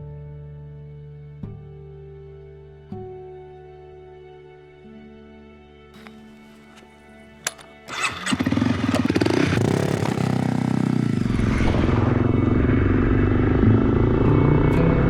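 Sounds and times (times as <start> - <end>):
starter click: 6.0 - 10.8
motorcycle engine running: 6.0 - 15.0.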